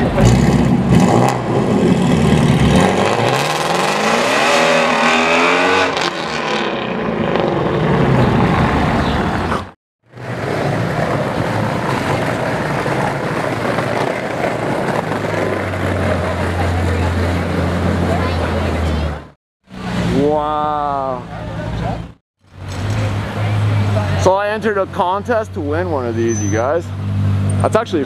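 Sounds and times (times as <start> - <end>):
car engine revving loudly: 0.0 - 8.7
street traffic: 0.0 - 28.0.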